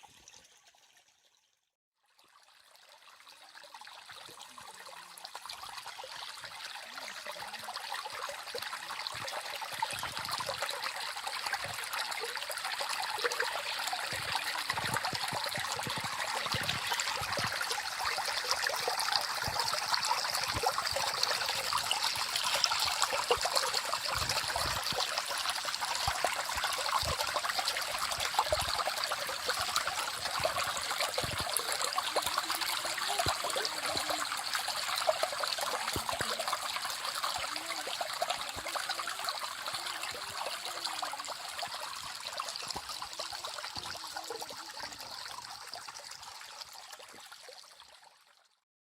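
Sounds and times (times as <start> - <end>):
stream babbling over rocks: 4.0 - 47.6
soft low gurgles: 6.3 - 47.3
water droplets: 14.0 - 40.4.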